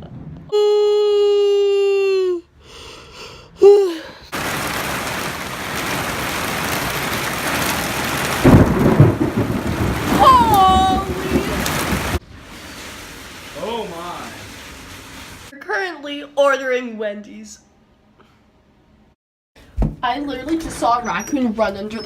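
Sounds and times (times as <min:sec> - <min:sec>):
rain and hail on a car: 0:04.4 - 0:15.5
thunder rumbles: 0:04.4 - 0:15.5.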